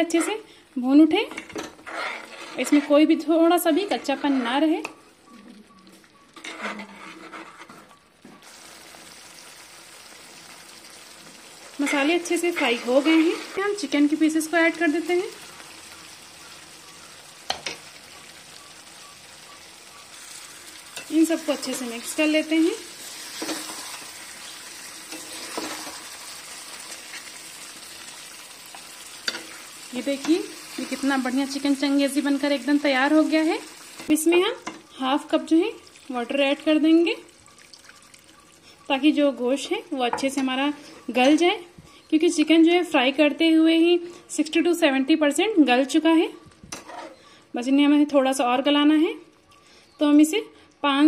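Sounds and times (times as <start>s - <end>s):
steel spoon scraping masala: 1.7s - 5.0s, 6.4s - 8.0s, 11.8s - 15.4s, 19.9s - 27.4s, 46.7s - 47.2s
masala sizzling in oil: 6.2s - 41.5s.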